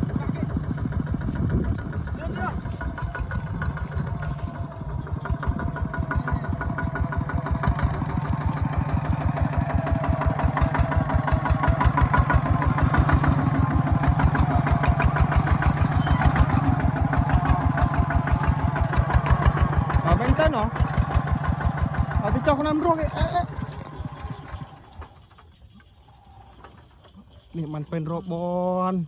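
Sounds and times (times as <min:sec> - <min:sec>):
farm machine engine thudding: 0:00.1 - 0:25.8.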